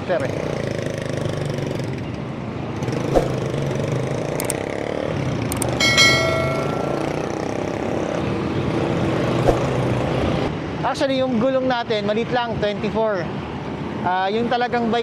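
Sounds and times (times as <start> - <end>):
road traffic: 0.0 - 15.0
bicycle bell ring: 5.8 - 7.8.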